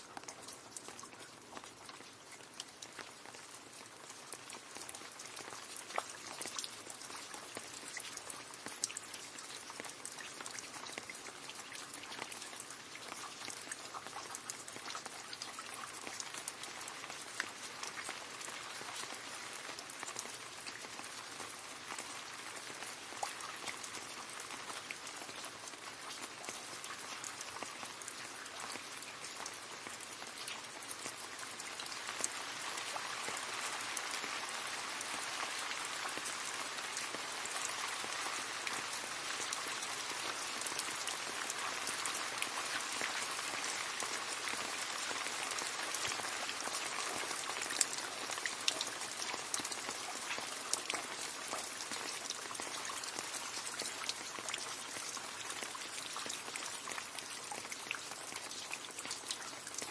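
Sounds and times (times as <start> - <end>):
rain splashing into a puddle: 0.0 - 59.9.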